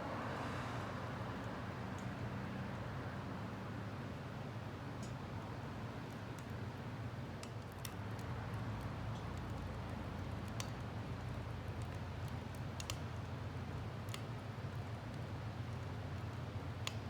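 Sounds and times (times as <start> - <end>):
fire low rumble: 5.5 - 16.9
wood fire crackling and popping: 7.3 - 17.0.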